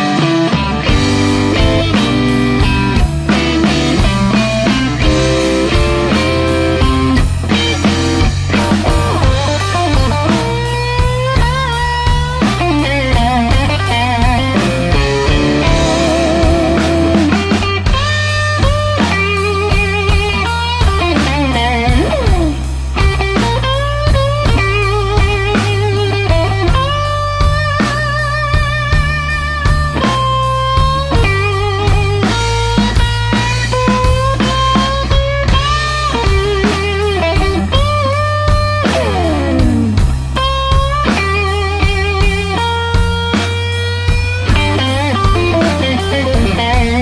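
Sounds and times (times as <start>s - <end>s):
bass: 0.0s - 47.0s
drum kit: 0.0s - 47.0s
electric guitar with string bends: 0.0s - 47.0s.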